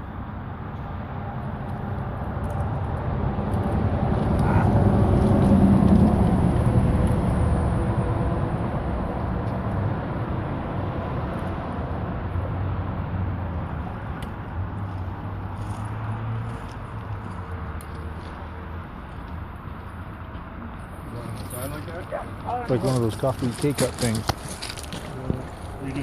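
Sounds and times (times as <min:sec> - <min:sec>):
vehicle passing by rumbling: 0:01.2 - 0:19.6.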